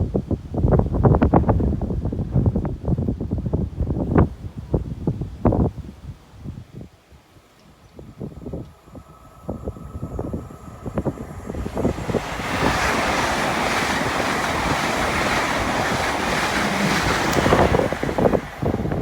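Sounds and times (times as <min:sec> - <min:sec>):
wind buffeting microphone: 0:00.0 - 0:19.0
train rushing past: 0:08.2 - 0:19.0.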